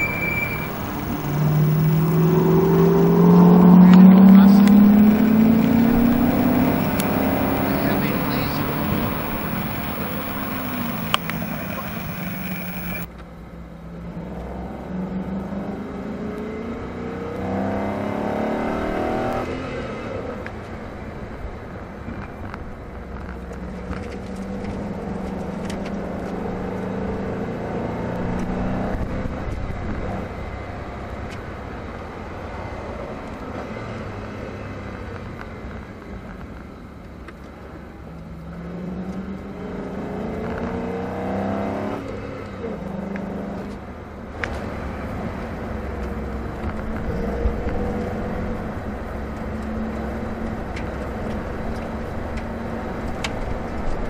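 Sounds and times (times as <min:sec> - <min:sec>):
car engine revving: 0:00.0 - 0:13.1, 0:14.4 - 0:20.5, 0:38.5 - 0:53.2
road and wind noise: 0:00.0 - 0:54.0.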